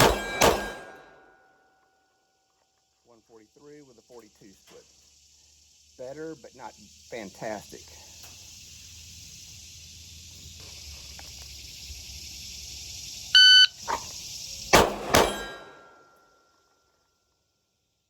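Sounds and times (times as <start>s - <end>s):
pistol shots: 0.0s - 1.2s, 14.8s - 15.8s
shot timer beep: 13.4s - 13.7s.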